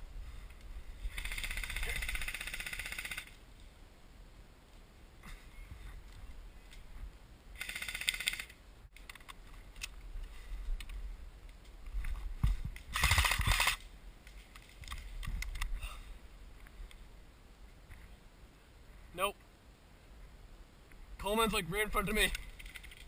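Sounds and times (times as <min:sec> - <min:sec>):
airsoft rifle bursts: 0:07.6 - 0:08.6, 0:12.9 - 0:13.8.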